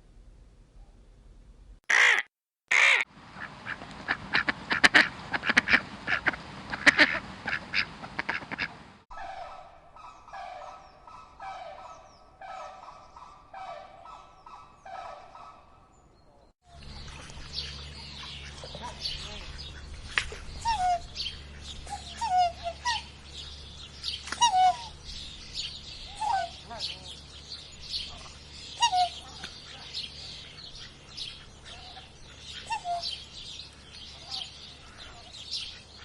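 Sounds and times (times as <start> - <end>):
birds calling: 1.9 - 36.0.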